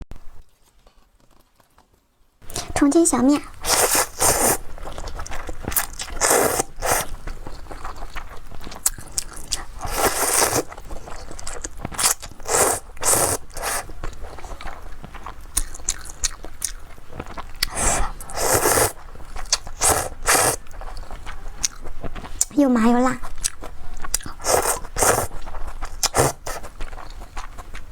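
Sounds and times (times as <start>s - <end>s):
crunching and scraping: 3.4s - 22.6s.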